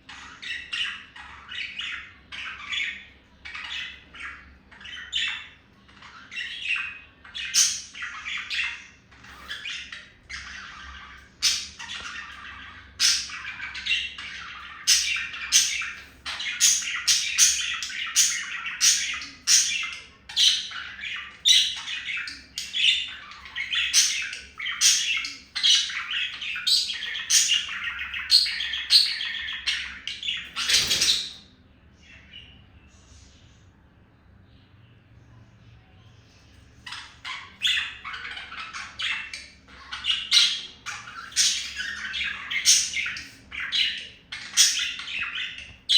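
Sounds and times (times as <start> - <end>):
budgerigars chattering and warbling: 0.0 - 32.5, 36.4 - 45.9
sharp bird chirps: 20.5 - 31.5.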